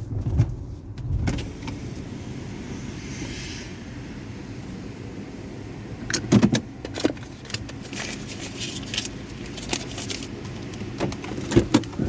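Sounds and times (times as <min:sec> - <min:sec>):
car wash machinery humming: 0:00.8 - 0:12.0
hiss: 0:01.5 - 0:05.6.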